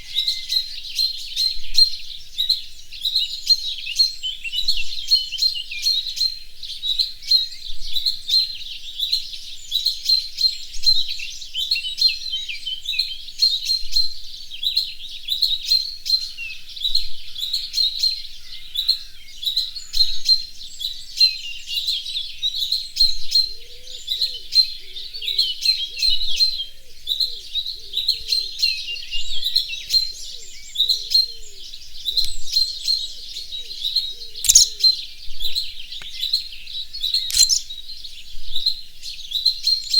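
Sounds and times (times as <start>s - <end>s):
small birds chirping: 17.4s - 39.9s
sharp click: 34.5s - 34.8s, 37.3s - 37.7s.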